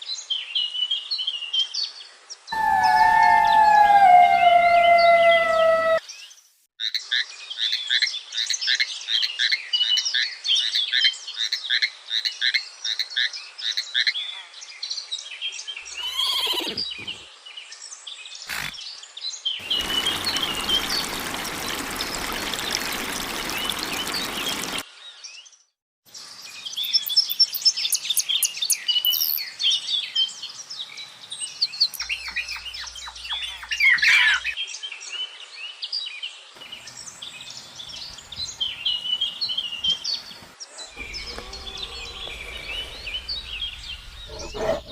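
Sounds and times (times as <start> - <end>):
birds chirping: 2.6 - 6.0, 15.8 - 17.4, 19.6 - 24.8, 26.6 - 34.6, 36.6 - 44.9
falling bird call: 2.6 - 6.0, 15.9 - 17.2, 19.6 - 24.8, 40.9 - 44.9
loud even hiss: 41.0 - 44.4.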